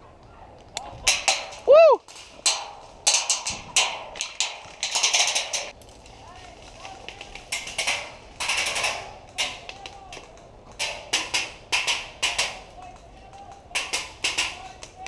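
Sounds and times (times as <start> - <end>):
airsoft guns firing: 7.2 - 15.0.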